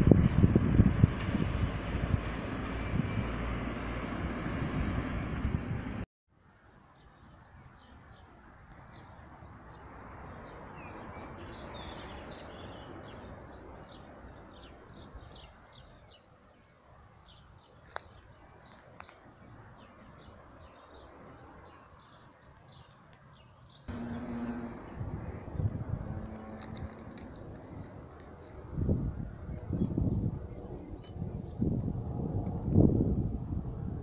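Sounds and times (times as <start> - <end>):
steady outdoor rush: 0.0 - 6.0, 7.5 - 34.0
small birds chirping: 6.5 - 31.6.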